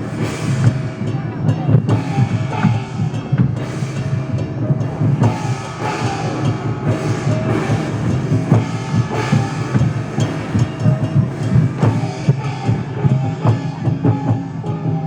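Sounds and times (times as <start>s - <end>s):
drum and percussion beating: 0.0s - 15.0s.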